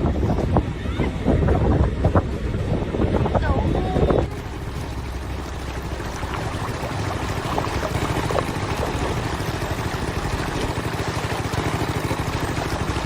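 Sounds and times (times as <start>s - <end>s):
rushing water: 3.8s - 13.0s.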